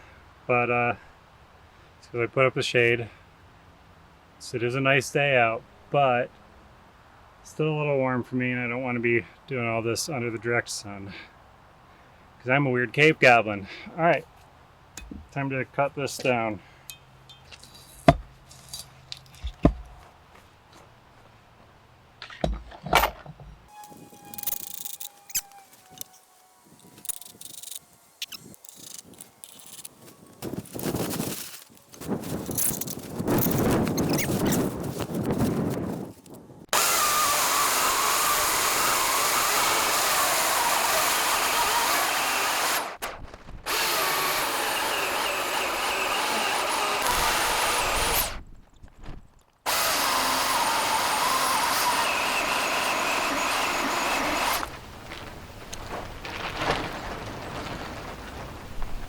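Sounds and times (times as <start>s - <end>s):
power saw cutting wood: 23.7s - 32.0s, 36.7s - 43.0s, 43.7s - 48.4s, 49.7s - 54.8s
rough scraping on log: 23.7s - 36.3s.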